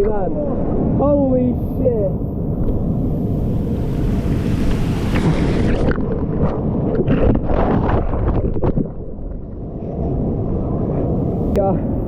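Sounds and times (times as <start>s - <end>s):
heavy surf churning: 0.0s - 8.6s, 9.7s - 12.0s.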